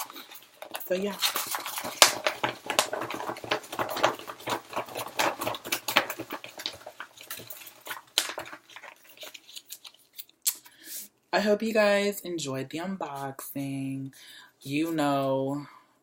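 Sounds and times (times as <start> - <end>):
paper and packaging crinkling: 0.0 - 10.6.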